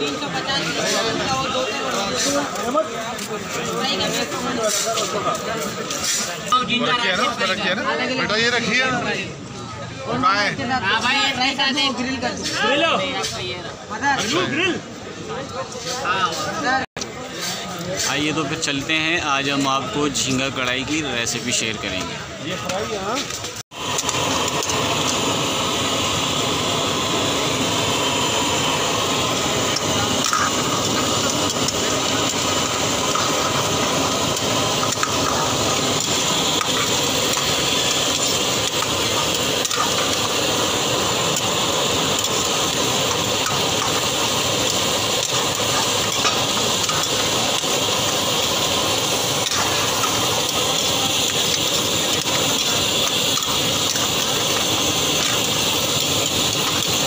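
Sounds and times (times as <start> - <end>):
prawns sizzling in hot oil: 0.0 - 8.6, 23.0 - 57.0.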